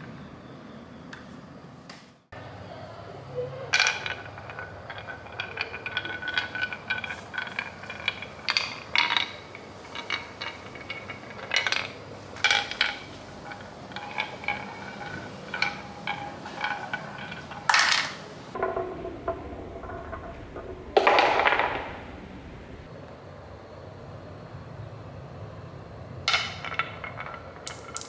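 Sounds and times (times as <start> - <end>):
glass marbles clicking: 3.6 - 18.6, 26.3 - 28.0.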